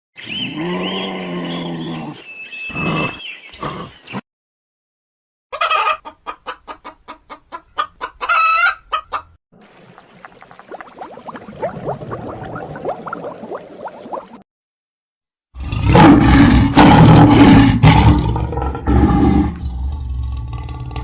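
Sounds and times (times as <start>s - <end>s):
flock of chickens calling: 5.5s - 9.3s
hen clucking: 5.5s - 9.3s.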